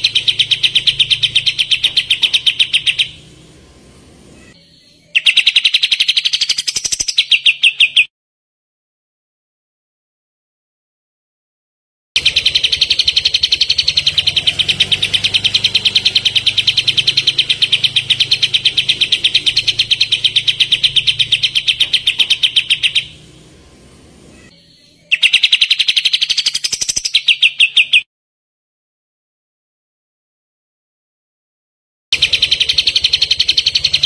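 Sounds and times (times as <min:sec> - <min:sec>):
songbird rattling trill: 0:00.0 - 0:03.6, 0:04.4 - 0:08.1, 0:12.2 - 0:23.5, 0:25.1 - 0:28.0, 0:32.2 - 0:34.0.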